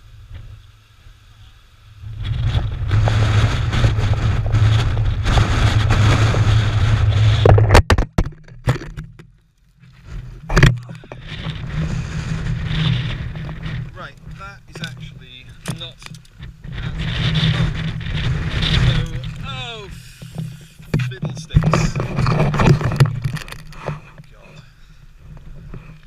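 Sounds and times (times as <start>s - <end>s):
wind buffeting microphone: 2.0s - 7.8s, 10.3s - 23.8s.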